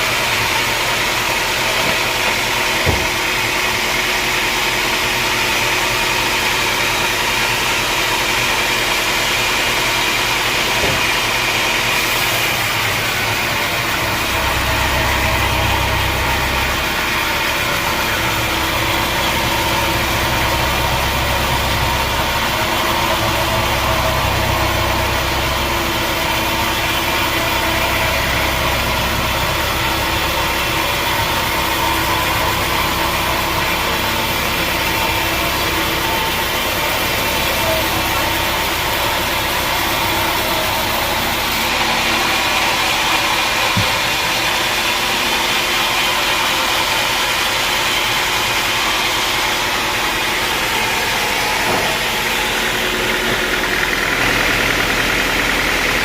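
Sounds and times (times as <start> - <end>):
sawmill machinery humming: 0.0 - 56.0
short knock: 2.8 - 3.2.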